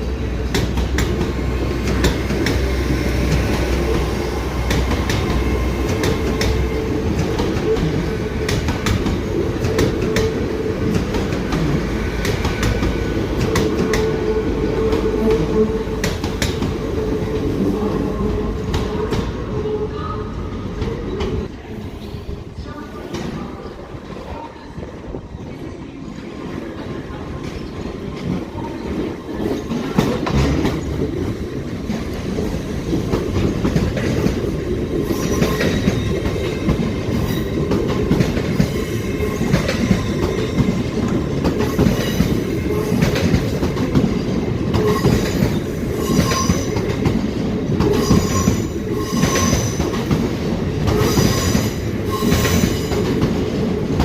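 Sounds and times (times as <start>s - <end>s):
train rumble: 0.0s - 54.0s
train wheels squealing: 35.0s - 36.2s, 44.8s - 47.0s, 47.9s - 50.1s, 51.0s - 53.2s.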